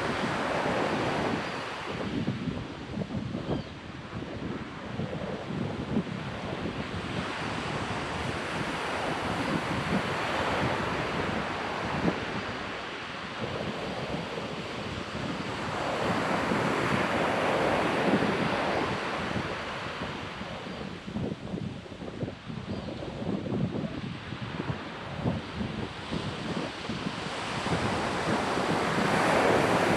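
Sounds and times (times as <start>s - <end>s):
ocean surf on sandy beach: 0.0s - 29.9s
wind buffeting microphone: 0.0s - 29.9s.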